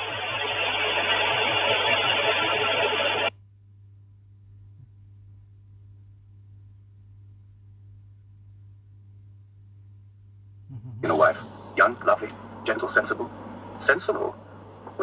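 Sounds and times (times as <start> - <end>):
faint low electrical hum: 3.0 - 15.0
car road noise: 11.0 - 15.0.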